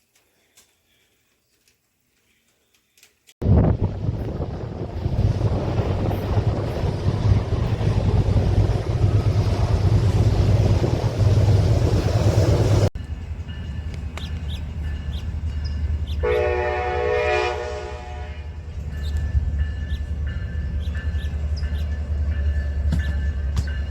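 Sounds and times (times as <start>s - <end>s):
train passing rumble: 3.4s - 23.9s
locomotive air horn blast: 16.2s - 18.6s.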